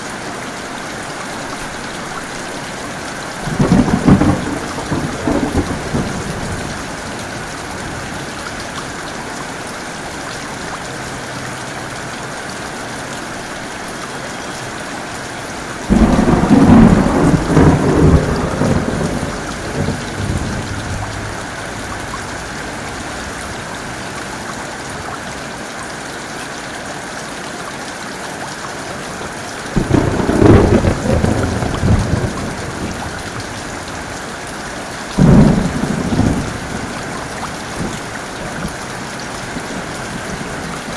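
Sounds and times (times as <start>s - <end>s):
heavy rain: 0.0s - 40.9s
thunder peals rumbling: 3.4s - 8.4s, 15.9s - 25.4s, 29.8s - 34.2s, 35.2s - 40.9s.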